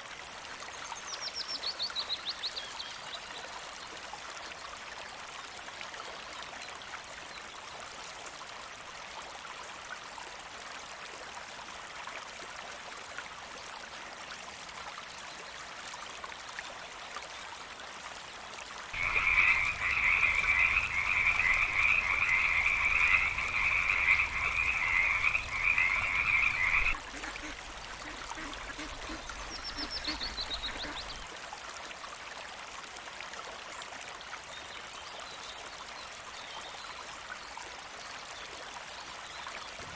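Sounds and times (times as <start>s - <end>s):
animal trilling call: 19.0s - 31.2s
running water: 19.0s - 32.2s.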